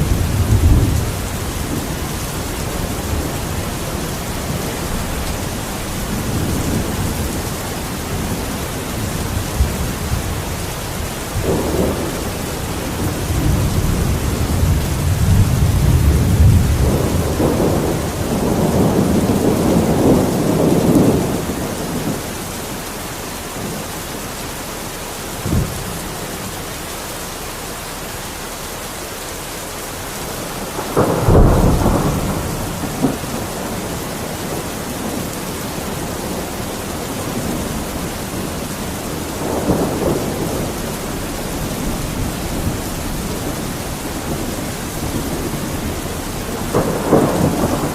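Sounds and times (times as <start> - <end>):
thunder rumbling and cracking: 0.0 - 24.4, 25.3 - 26.6, 29.9 - 47.9
heavy rain: 0.0 - 47.9.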